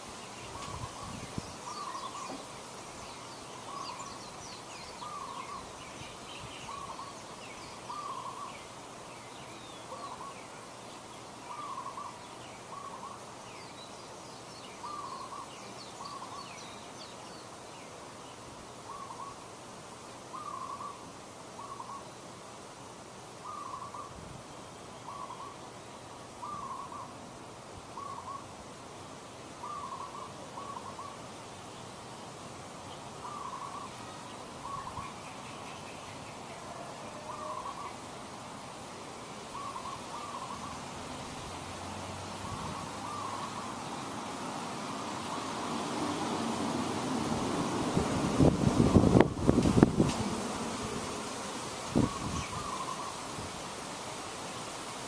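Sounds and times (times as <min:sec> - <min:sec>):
bird hooting calls: 0:05.0 - 0:05.8, 0:07.9 - 0:08.6, 0:09.8 - 0:10.6, 0:11.5 - 0:13.2, 0:14.8 - 0:16.4, 0:20.3 - 0:21.0, 0:21.6 - 0:22.0, 0:23.4 - 0:24.2, 0:25.0 - 0:25.6, 0:26.4 - 0:27.2, 0:28.0 - 0:28.5, 0:29.6 - 0:31.2, 0:33.2 - 0:35.2, 0:36.4 - 0:38.0, 0:39.5 - 0:40.9, 0:42.4 - 0:44.0, 0:52.0 - 0:53.2.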